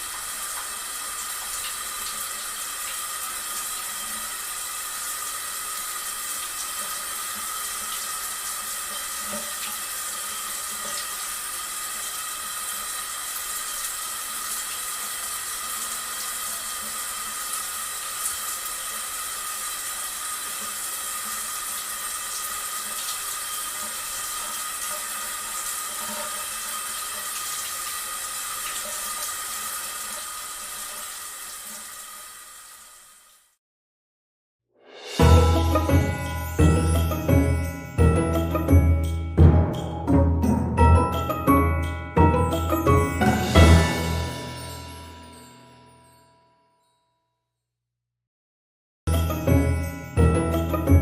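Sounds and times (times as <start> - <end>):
running water: 0.0 - 33.4, 42.2 - 45.6.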